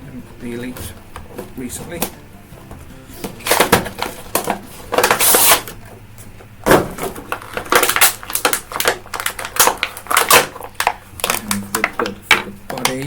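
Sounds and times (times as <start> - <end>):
packaging crackling and rustling: 3.2 - 5.9, 6.7 - 13.0.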